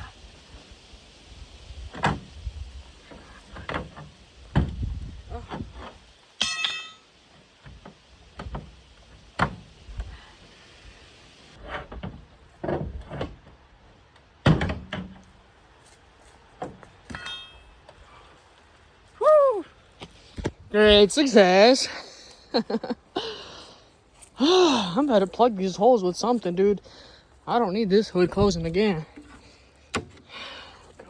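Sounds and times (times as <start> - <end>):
pry bar clanking on metal: 6.4 - 7.1, 17.1 - 17.7.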